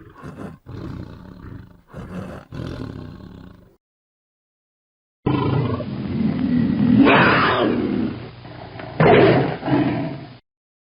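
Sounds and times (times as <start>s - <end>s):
tiger roaring: 0.0s - 3.8s, 5.3s - 8.2s.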